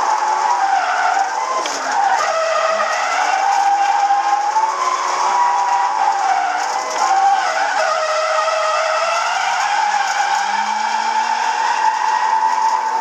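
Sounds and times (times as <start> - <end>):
car engine running: 0.0 - 13.0
high wavering whine: 10.2 - 13.0.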